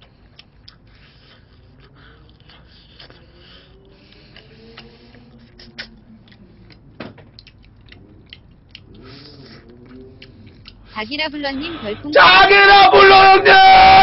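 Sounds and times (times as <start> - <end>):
chewing crunches: 0.0 - 11.0.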